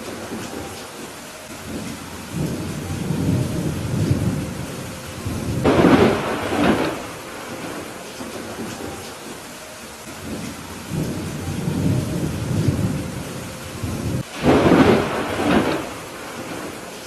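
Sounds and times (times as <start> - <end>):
steady rain falling: 0.0 - 17.0
thunder rumbling: 0.0 - 17.0
sharp thunder clap: 1.6 - 8.7, 10.2 - 13.2, 13.8 - 16.9.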